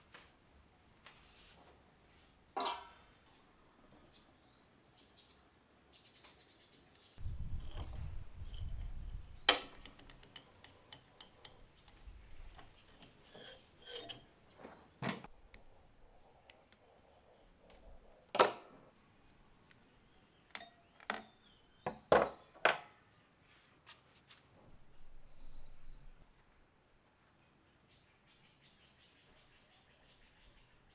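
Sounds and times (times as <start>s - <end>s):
metal tools knocking and clinking: 7.5s - 14.3s, 20.5s - 21.4s.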